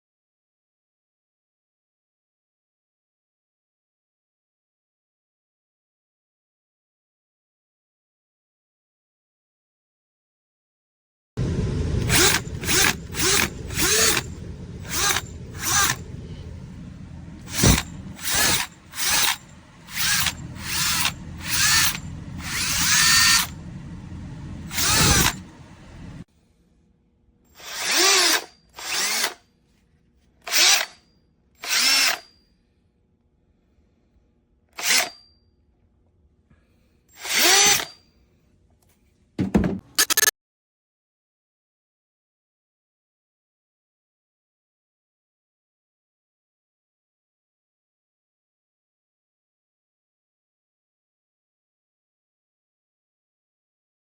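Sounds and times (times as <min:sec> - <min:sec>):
cordless drill motor spinning: 0:11.4 - 0:26.2, 0:27.6 - 0:29.4, 0:30.5 - 0:30.9, 0:31.6 - 0:32.2, 0:34.8 - 0:35.1, 0:37.2 - 0:37.9
background hum: 0:11.4 - 0:27.6.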